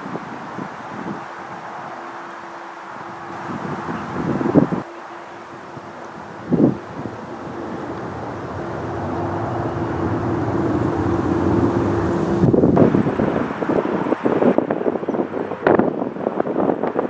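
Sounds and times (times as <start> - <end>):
wind gusting on microphone: 2.9 - 17.0
vehicle rumble: 3.2 - 16.0.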